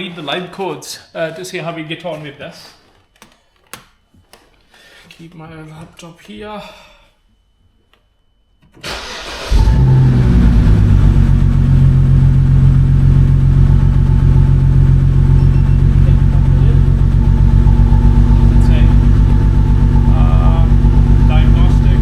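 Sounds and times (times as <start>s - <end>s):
car engine idling unevenly: 8.9s - 22.0s.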